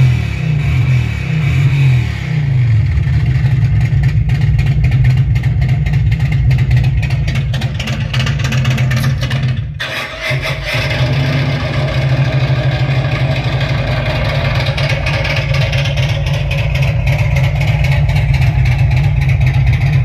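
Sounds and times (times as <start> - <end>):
motorcycle engine idling: 2.7 - 9.8, 11.2 - 20.0.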